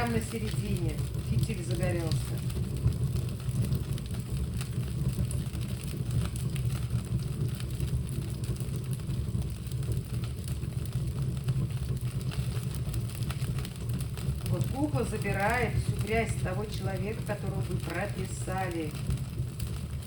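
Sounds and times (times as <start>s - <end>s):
fire crackles: 0.0s - 20.0s
fire roaring in a fireplace: 0.0s - 20.0s.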